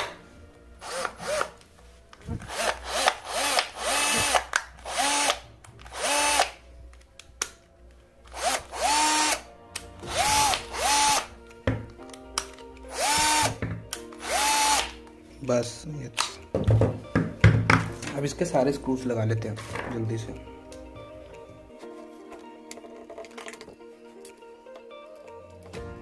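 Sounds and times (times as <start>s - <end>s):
cordless drill motor whine: 0.8s - 1.6s, 2.3s - 6.6s, 8.3s - 11.3s, 12.9s - 13.6s, 14.2s - 14.9s.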